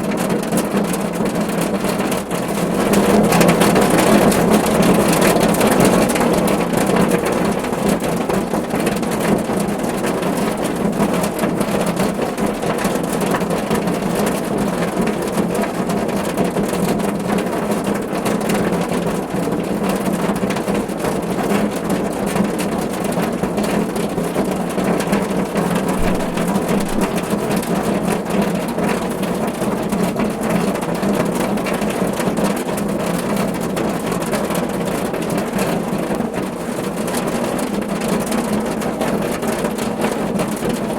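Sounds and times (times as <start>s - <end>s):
rain on a car roof: 0.0s - 40.9s.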